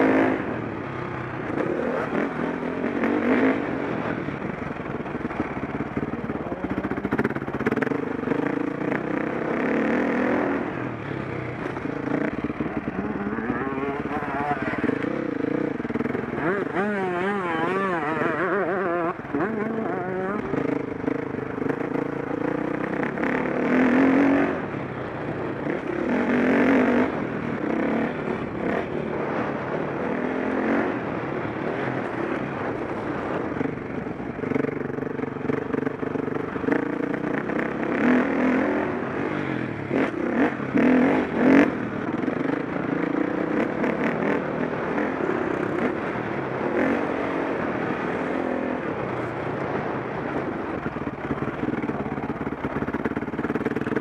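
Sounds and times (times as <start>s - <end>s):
dirt bike engine revving: 0.0s - 4.3s, 5.2s - 33.4s.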